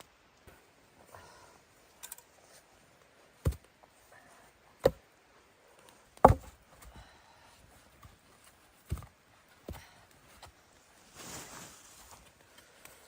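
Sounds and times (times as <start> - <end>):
sharp knocks: 6.2 - 6.5
rustling: 8.1 - 13.0.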